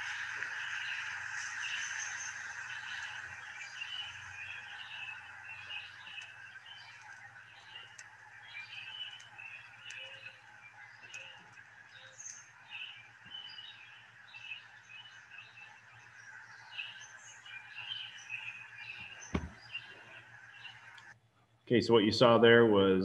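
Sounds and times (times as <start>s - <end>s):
birds chirping: 0.0s - 22.6s
faint outdoor hiss: 0.0s - 23.0s.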